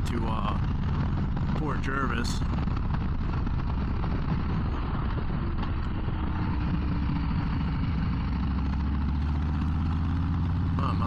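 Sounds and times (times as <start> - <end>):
wind rush: 0.0 - 10.5
motorcycle engine running: 0.0 - 11.0.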